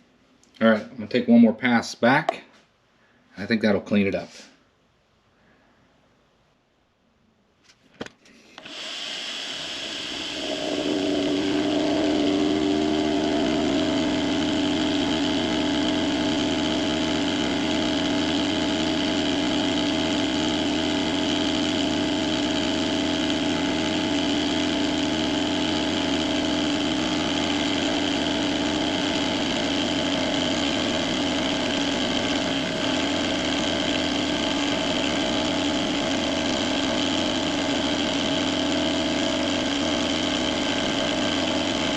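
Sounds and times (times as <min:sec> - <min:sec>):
milling machine cutting aluminium: 0:08.6 - 0:41.9.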